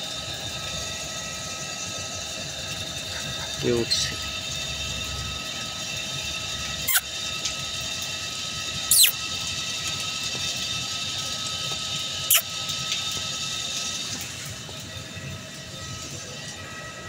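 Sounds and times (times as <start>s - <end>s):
puppies squealing: 6.8s - 7.1s, 8.9s - 9.1s
high-pitched drone: 8.9s - 9.1s.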